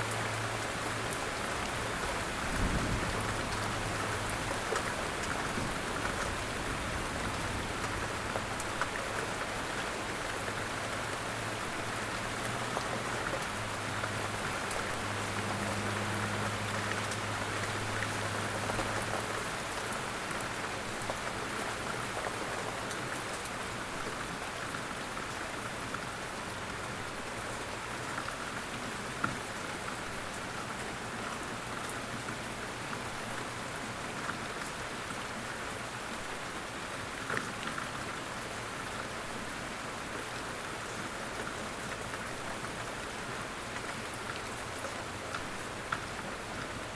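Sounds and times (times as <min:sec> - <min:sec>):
steady rainfall: 0:00.0 - 0:46.9.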